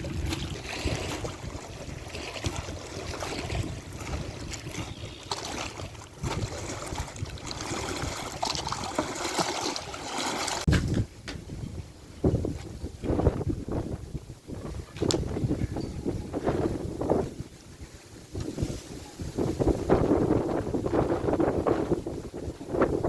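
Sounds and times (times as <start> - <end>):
wind on microphone: 0.0 - 10.0, 10.6 - 23.0
rushing water with splashes: 0.0 - 10.8.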